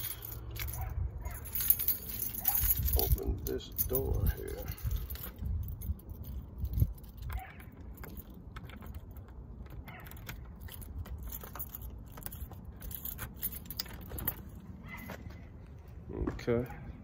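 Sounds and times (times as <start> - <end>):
keys jangling at a door lock: 0.0 - 15.2.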